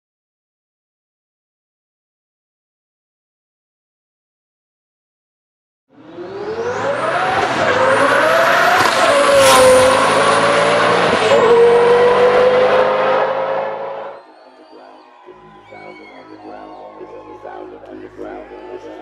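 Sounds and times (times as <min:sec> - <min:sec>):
sports car engine at full throttle: 0:05.9 - 0:14.2.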